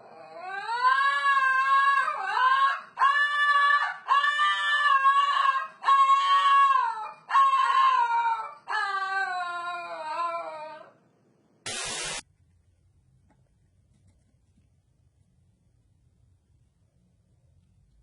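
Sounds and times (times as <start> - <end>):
pet yowling: 0.0 - 11.0.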